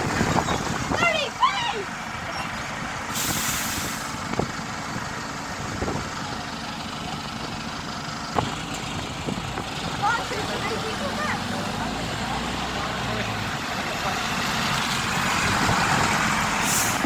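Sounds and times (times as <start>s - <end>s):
heavy truck engines running: 0.0s - 17.0s
air brake hiss: 3.2s - 4.2s, 16.6s - 17.0s.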